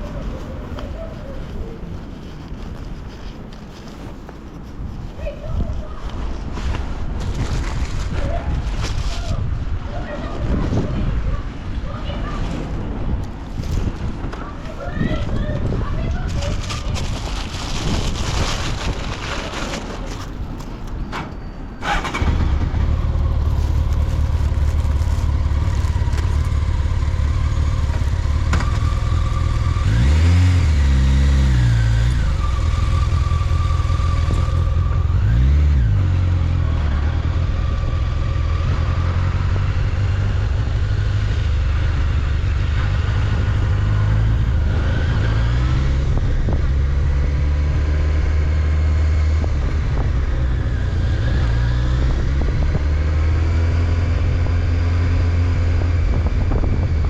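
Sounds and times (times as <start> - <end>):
motorcycle engine starting and idling: 19.5 - 37.5.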